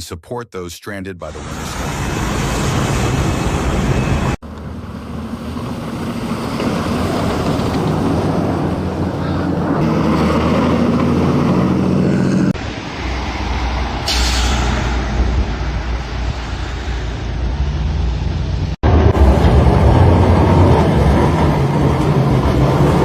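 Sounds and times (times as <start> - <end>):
road noise: 1.2 - 23.0
vehicle engine: 1.3 - 23.0.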